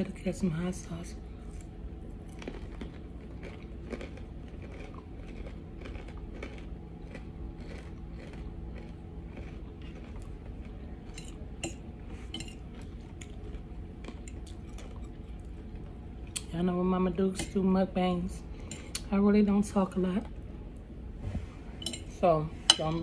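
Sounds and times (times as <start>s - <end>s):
steady low hum: 0.0s - 23.0s
chewing and biting food: 1.5s - 16.5s.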